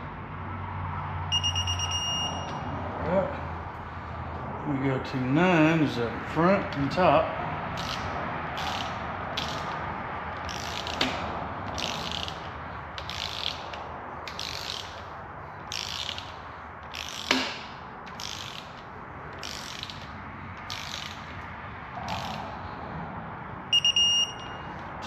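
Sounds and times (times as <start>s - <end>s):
ratchet wrench clicking: 7.8s - 22.5s.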